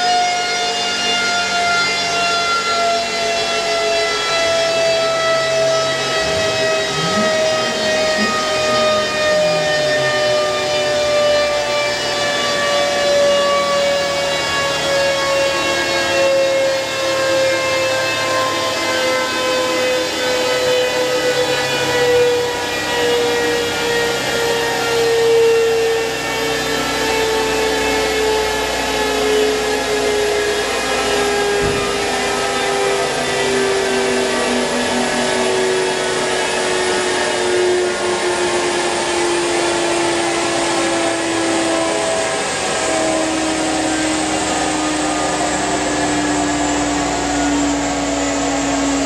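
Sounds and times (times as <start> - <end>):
car engine running: 4.7 - 12.5.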